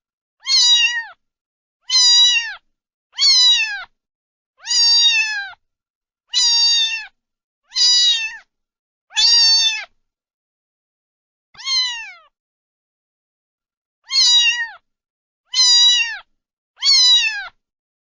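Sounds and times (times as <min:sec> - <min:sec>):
cat meowing: 0:00.4 - 0:01.2, 0:01.8 - 0:04.0, 0:04.6 - 0:05.6, 0:06.3 - 0:08.5, 0:09.1 - 0:10.0, 0:11.6 - 0:12.4, 0:14.0 - 0:14.8, 0:15.5 - 0:17.6.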